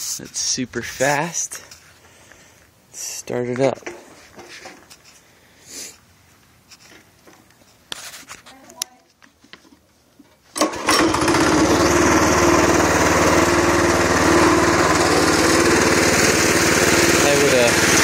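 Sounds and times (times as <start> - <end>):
mini bike engine running: 10.6 - 18.0.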